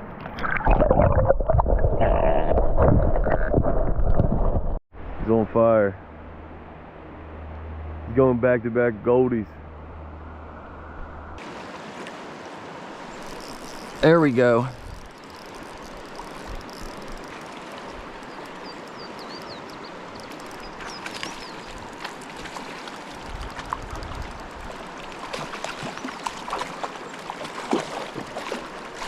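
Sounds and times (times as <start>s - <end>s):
river water flowing: 6.0s - 29.0s
faint bird chirps: 18.3s - 21.8s.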